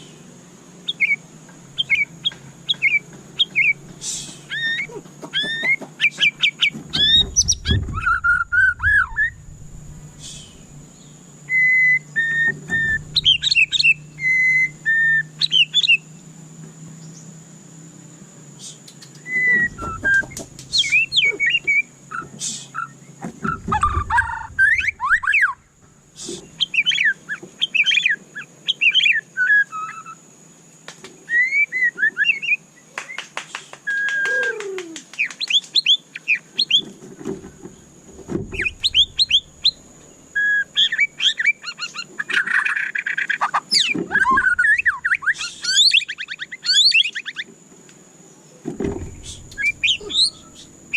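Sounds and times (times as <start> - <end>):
bird singing whistled phrases: 2.7 - 9.4, 10.2 - 16.1, 18.6 - 30.2, 31.3 - 33.2, 33.9 - 36.8, 38.5 - 39.8, 40.4 - 47.5, 49.0 - 50.7.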